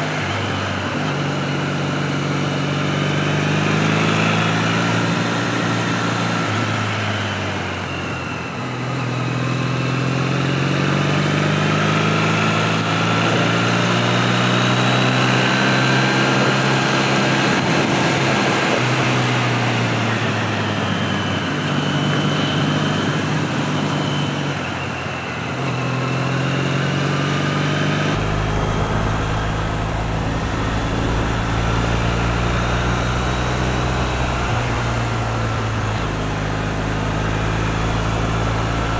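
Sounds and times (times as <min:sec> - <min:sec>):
motorcycle engine running: 0:27.5 - 0:38.9
deep low rumble: 0:28.1 - 0:38.9
wind rush: 0:28.1 - 0:38.9.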